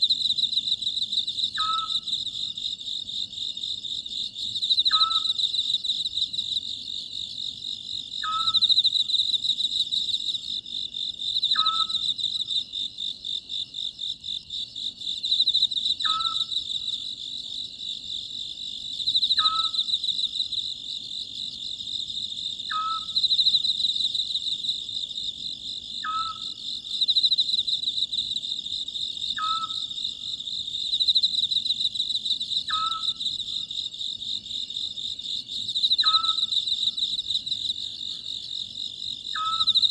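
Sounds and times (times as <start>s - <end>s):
crickets trilling: 0.0s - 39.9s
owl calling: 1.6s - 2.0s, 4.9s - 5.4s, 8.2s - 8.6s, 11.5s - 12.0s, 16.0s - 16.5s, 19.4s - 19.8s, 22.7s - 23.2s, 26.0s - 26.6s, 29.4s - 29.9s, 32.7s - 33.2s, 36.0s - 36.5s, 39.4s - 39.8s.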